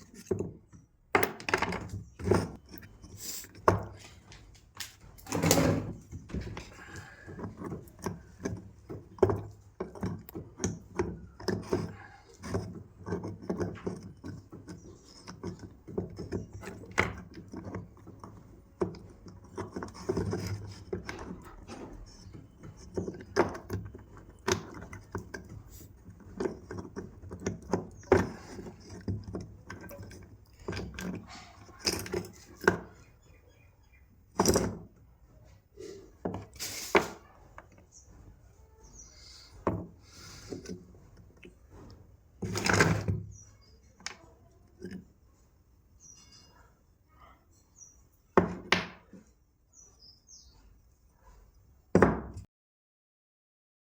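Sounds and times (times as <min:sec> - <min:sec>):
tools and parts knocking and rattling: 0:00.0 - 0:38.3, 0:39.5 - 0:45.2, 0:48.3 - 0:49.3.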